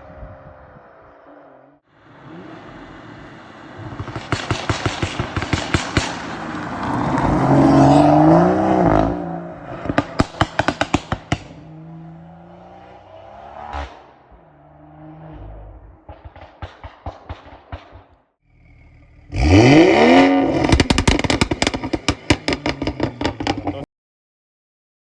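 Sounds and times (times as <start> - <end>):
car engine revving: 0.3 - 23.9
exhaust pops and crackles: 3.2 - 7.8, 9.7 - 11.7, 16.0 - 18.2, 20.5 - 23.9.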